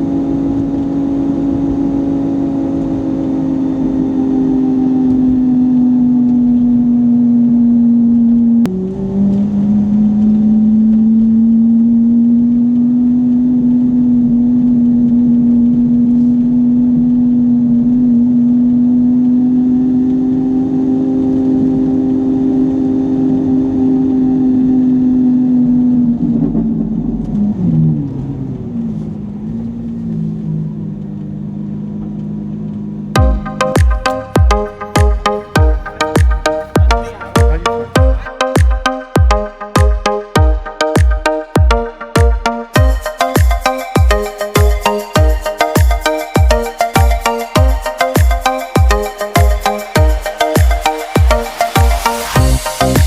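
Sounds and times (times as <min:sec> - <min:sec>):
car engine droning: 0:00.0 - 0:38.3.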